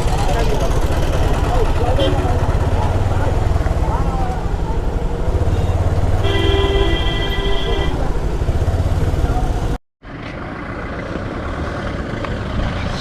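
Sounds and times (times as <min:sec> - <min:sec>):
motorcycle engine: 0:00.0 - 0:13.0
road and crowd background: 0:00.0 - 0:13.0
vehicle horn: 0:01.9 - 0:02.5, 0:05.4 - 0:08.2.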